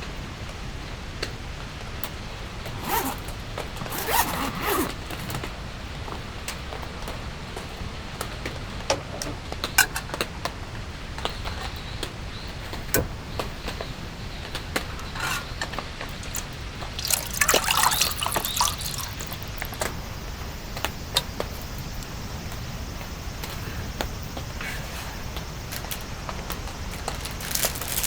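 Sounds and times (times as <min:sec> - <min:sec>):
water dripping: 0:14.5 - 0:24.4, 0:25.4 - 0:28.0
water pouring and splashing: 0:15.0 - 0:20.3, 0:26.8 - 0:28.0.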